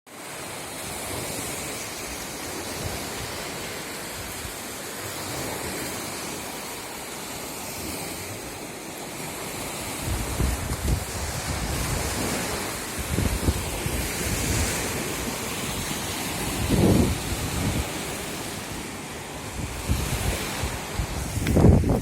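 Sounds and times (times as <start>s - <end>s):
wind buffeting microphone: 9.7s - 22.0s
strong wind rushing: 10.0s - 18.6s, 19.2s - 22.0s.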